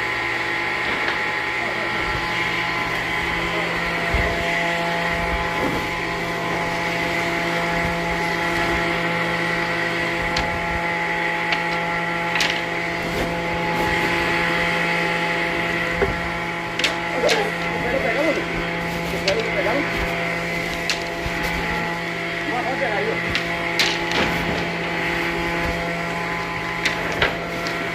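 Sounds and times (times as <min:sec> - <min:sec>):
machine motor humming: 0:00.0 - 0:27.9.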